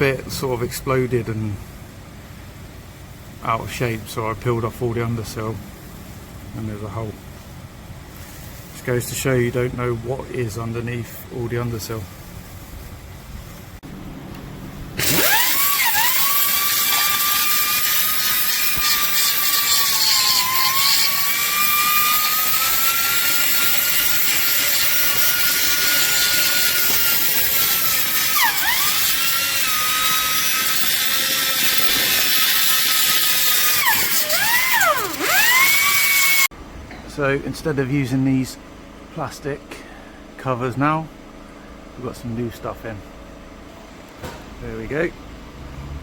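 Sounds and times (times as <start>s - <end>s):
electric grinder on steel: 15.0s - 36.5s.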